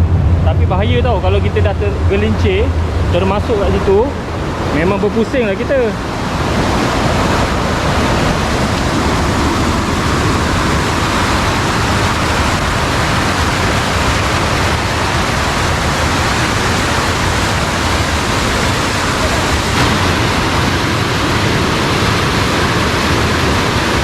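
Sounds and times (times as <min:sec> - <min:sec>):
water rushing: 0:00.0 - 0:24.0.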